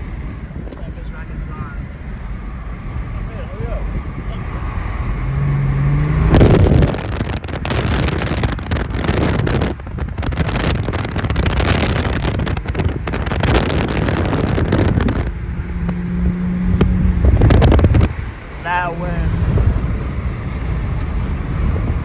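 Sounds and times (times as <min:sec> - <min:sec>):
car engine driving: 0:00.0 - 0:22.0
wind noise on microphone: 0:00.0 - 0:22.0.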